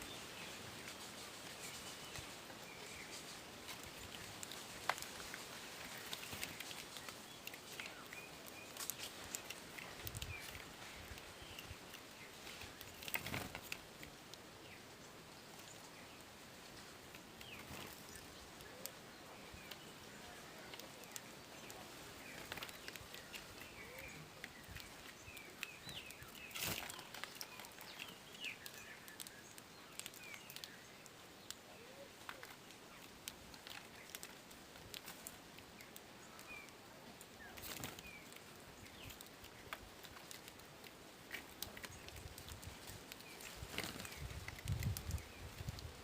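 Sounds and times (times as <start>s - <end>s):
light clicks and rustles: 0.4s - 14.5s, 19.6s - 46.0s
bird chirps: 17.5s - 33.0s.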